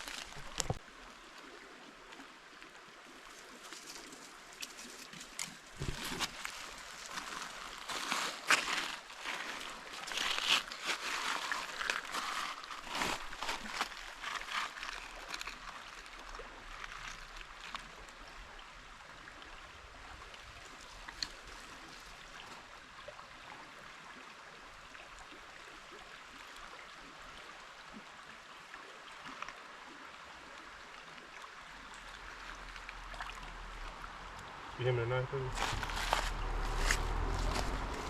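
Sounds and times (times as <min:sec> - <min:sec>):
faint clicks and rustles: 0:00.0 - 0:00.8
stream water running: 0:00.0 - 0:38.0.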